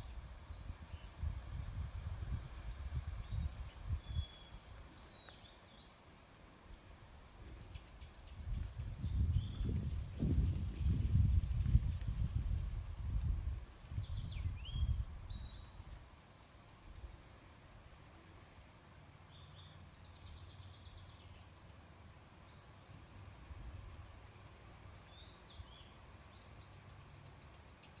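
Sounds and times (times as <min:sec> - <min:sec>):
wind buffeting microphone: 0:00.0 - 0:04.7, 0:07.5 - 0:16.0
small birds chirping: 0:07.4 - 0:11.3.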